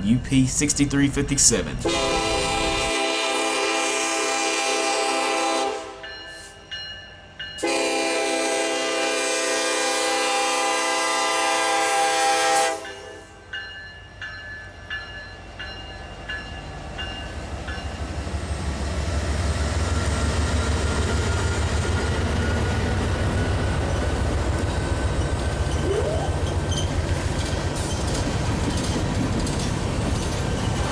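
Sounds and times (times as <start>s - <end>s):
rumble of passing freight train: 0.0s - 30.9s
locomotive air horn: 1.8s - 6.0s, 7.6s - 13.2s
train wheels clicking over rail joints: 26.4s - 30.9s.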